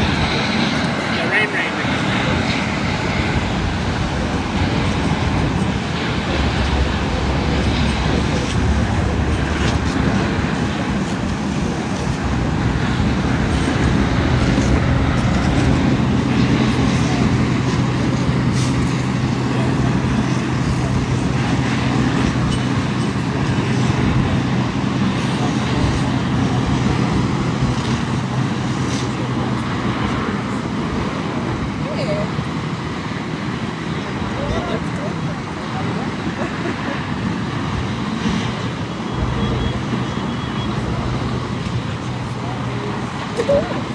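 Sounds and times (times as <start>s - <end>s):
traffic noise: 0.0s - 43.9s
vehicle engine humming: 0.0s - 43.9s.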